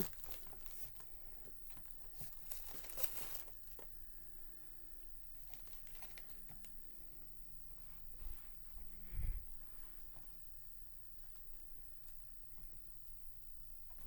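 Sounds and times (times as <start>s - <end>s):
rustling and crinkling handling noise: 0.0s - 4.2s, 5.3s - 7.0s.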